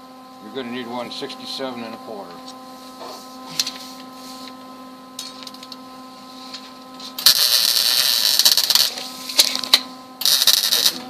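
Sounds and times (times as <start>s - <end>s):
machine hum: 0.0s - 11.0s
welding crackling hiss: 7.1s - 11.0s.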